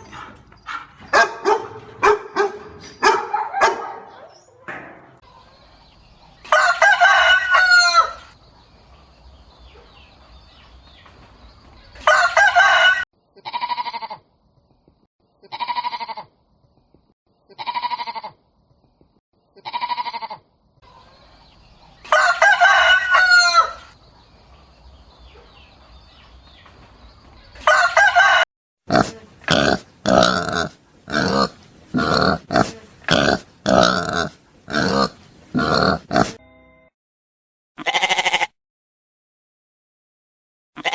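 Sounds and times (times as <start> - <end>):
rooster crowing: 6.5 - 8.4, 12.0 - 13.0, 22.0 - 24.0, 27.6 - 28.4
short falling rooster calls: 6.5 - 8.4, 12.0 - 13.0, 22.1 - 24.0, 27.6 - 28.4.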